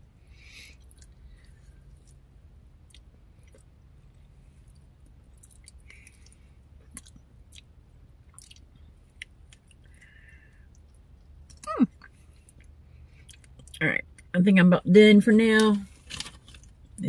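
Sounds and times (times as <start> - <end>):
faint low hum: 0.0 - 17.0
person chewing with mouth smacks: 0.7 - 2.2, 4.6 - 13.8.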